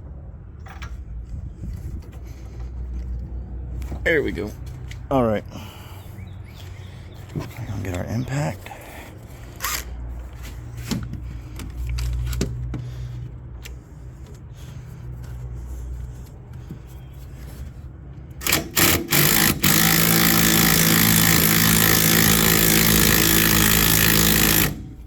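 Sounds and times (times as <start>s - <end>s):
impact wrench hammering: 18.4s - 25.0s.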